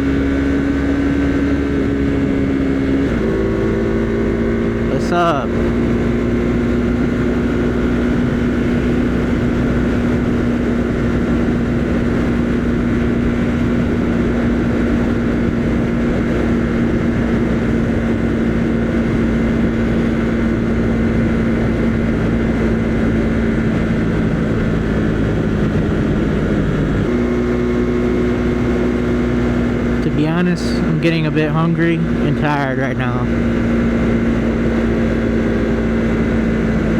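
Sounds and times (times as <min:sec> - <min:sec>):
motorcycle engine cruising: 0:00.0 - 0:36.9
wind rumble on microphone: 0:05.5 - 0:30.0.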